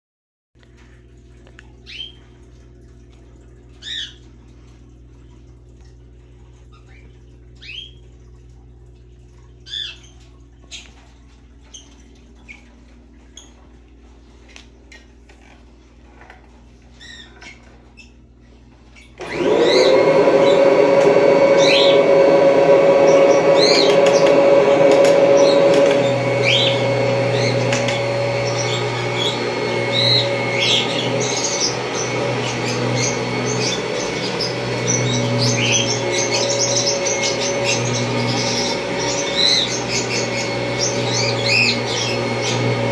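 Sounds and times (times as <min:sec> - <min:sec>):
birds chirping: 0:01.8 - 0:02.4, 0:06.6 - 0:08.2, 0:18.9 - 0:42.9
vacuum cleaner motor whine: 0:19.2 - 0:42.9.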